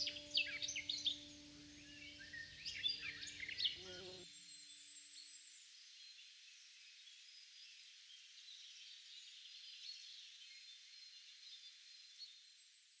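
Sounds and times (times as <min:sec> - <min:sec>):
distant birds chirping: 0:00.0 - 0:04.2.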